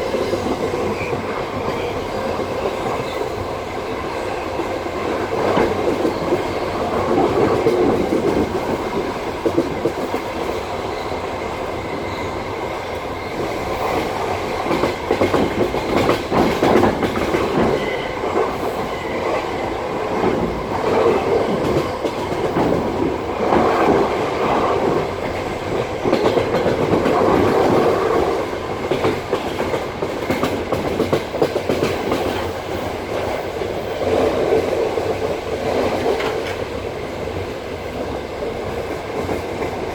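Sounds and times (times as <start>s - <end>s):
train wheels clattering over joints: 13.4s - 36.7s.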